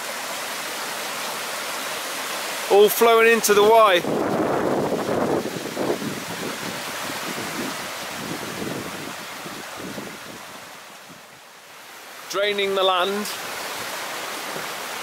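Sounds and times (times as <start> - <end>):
brook water flowing over stones: 0.0 - 15.0.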